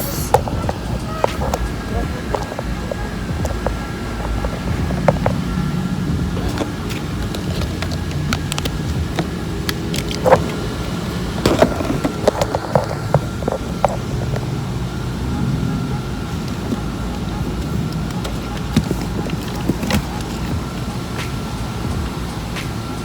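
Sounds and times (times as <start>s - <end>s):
steady low hum: 0.0s - 23.0s
objects clicking and knocking: 6.4s - 10.7s, 11.4s - 14.5s, 16.3s - 21.4s.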